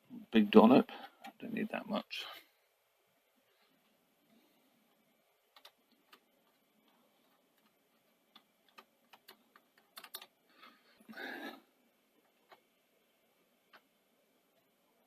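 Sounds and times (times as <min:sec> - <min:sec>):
small parts and tools clicking: 0:05.5 - 0:10.7.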